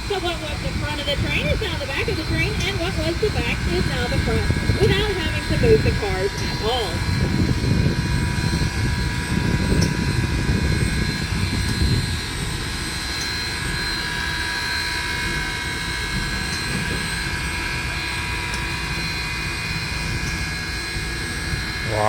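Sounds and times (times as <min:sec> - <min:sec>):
electric motor humming and whining: 0:00.0 - 0:22.0.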